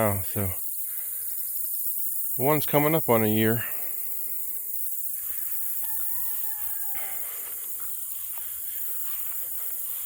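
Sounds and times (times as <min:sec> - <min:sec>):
insects hissing: 0:00.0 - 0:10.0
rooster crowing: 0:05.7 - 0:07.6.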